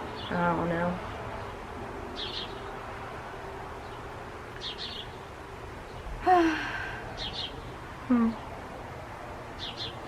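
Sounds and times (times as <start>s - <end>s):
outdoor background noise: 0.0s - 10.0s
small bird chirping: 2.2s - 2.7s, 3.8s - 5.3s, 7.2s - 8.5s, 9.6s - 10.0s.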